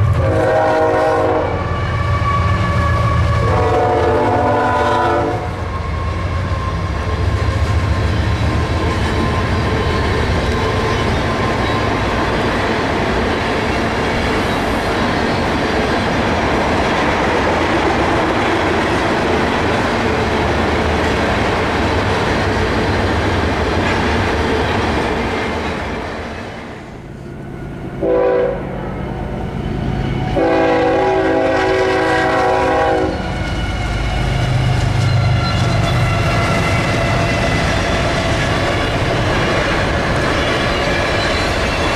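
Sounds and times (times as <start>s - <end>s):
locomotive air horn: 0.0s - 6.4s, 27.7s - 29.2s, 30.2s - 34.8s
low locomotive rumble: 0.0s - 41.9s
freight train wheels clattering: 5.8s - 41.9s.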